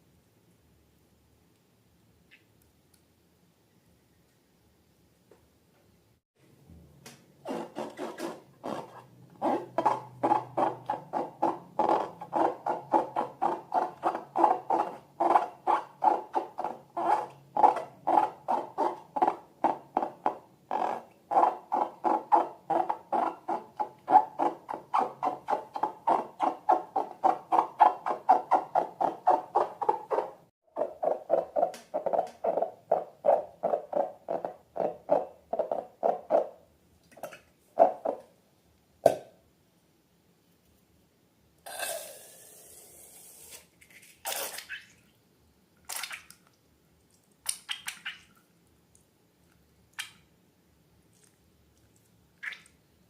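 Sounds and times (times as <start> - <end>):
wet slime squelches: 43.4 - 45.2, 45.8 - 50.4, 51.0 - 52.8.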